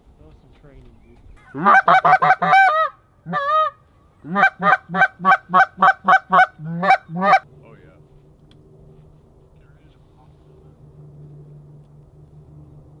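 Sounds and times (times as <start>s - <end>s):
goose honking: 1.4s - 7.4s.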